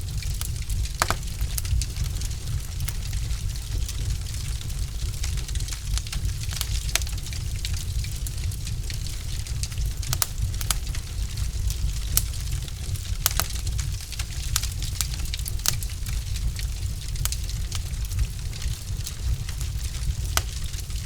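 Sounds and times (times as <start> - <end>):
fire low rumble: 0.0 - 21.0
wood fire crackling and popping: 0.0 - 21.0.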